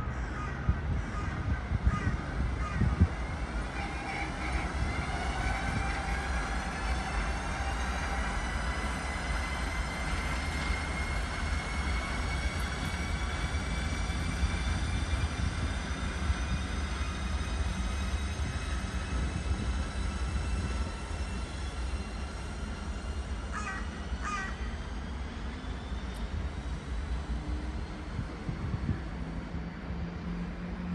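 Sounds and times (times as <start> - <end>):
electric train rumble: 0.0 - 30.9
train high whine: 0.0 - 30.9
crow cawing: 0.3 - 2.9, 23.5 - 24.6.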